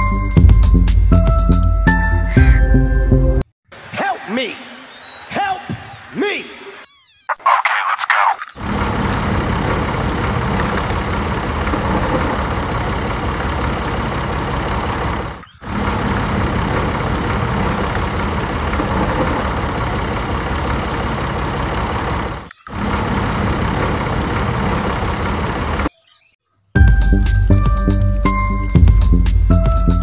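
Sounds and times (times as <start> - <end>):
tractor engine running: 8.6 - 25.9.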